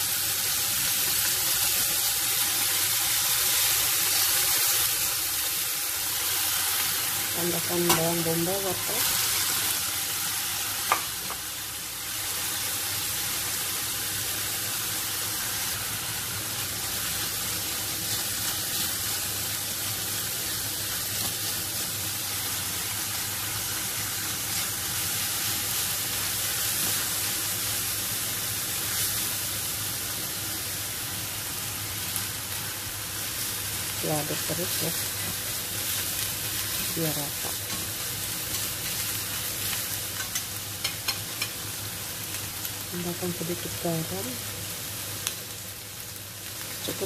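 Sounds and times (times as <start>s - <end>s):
meat sizzling in a frying pan: 0.0s - 47.0s.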